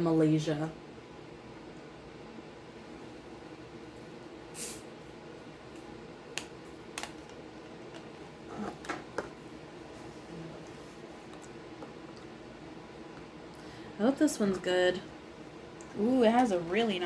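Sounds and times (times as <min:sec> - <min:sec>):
soda container hissing: 0:04.5 - 0:04.9.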